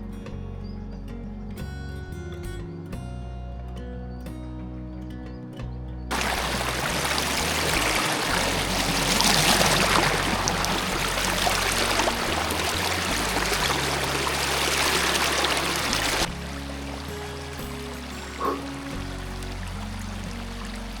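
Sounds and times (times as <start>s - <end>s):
heavy rain: 6.1s - 21.0s.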